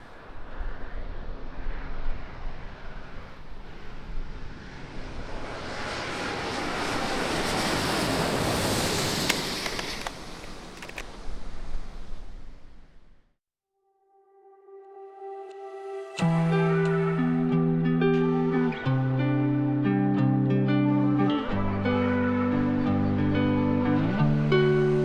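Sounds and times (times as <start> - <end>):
wind rumble on microphone: 0.0 - 10.4
jet airliner engine roar: 0.0 - 11.0, 15.8 - 25.0.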